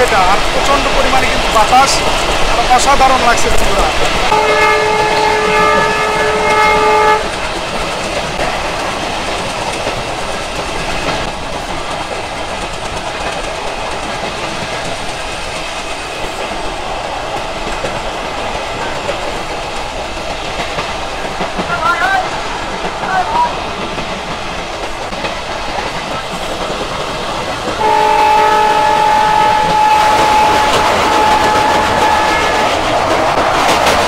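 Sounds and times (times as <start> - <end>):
train rattle and rumble: 0.0 - 34.0
wind blowing: 0.0 - 34.0
train horn chord: 4.3 - 7.3, 27.8 - 32.8.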